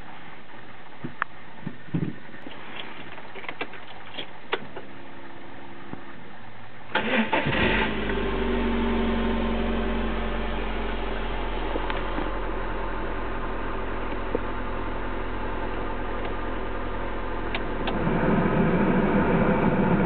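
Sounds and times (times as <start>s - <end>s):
car engine starting and idling: 6.9s - 20.0s.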